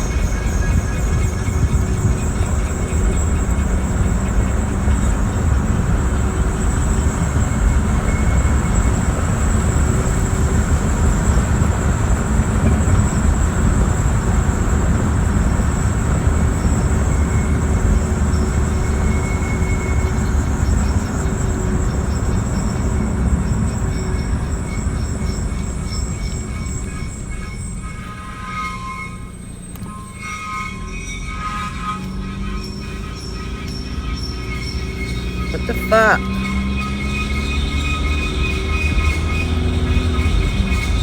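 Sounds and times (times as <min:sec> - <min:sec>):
car grinding rumble: 0:00.0 - 0:28.2.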